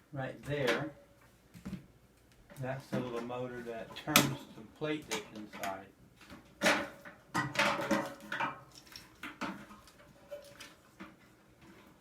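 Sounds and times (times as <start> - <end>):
microwave parts clattering: 2.9 - 12.0.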